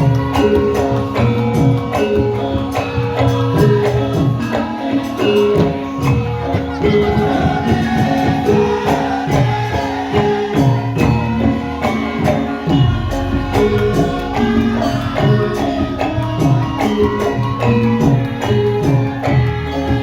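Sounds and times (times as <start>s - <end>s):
jingling percussion: 0.0s - 20.0s
metallophone tones: 0.0s - 20.0s
drum strokes: 5.6s - 20.0s.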